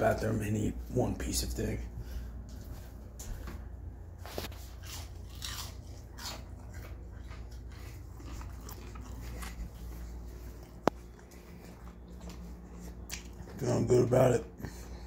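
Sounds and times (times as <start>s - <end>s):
person chewing food: 2.2s - 13.7s.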